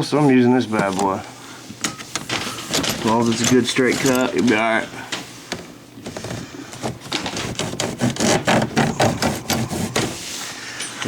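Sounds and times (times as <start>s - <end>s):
saw cutting plastic tubing: 6.8s - 10.2s.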